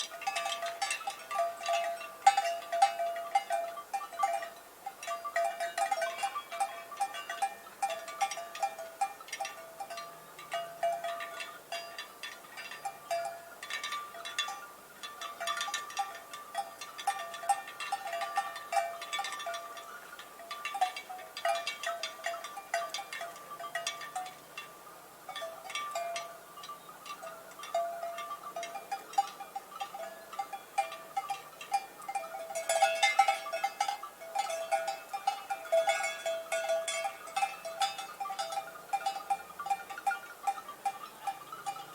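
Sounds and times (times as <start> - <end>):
cowbells ringing: 0.0 - 41.9.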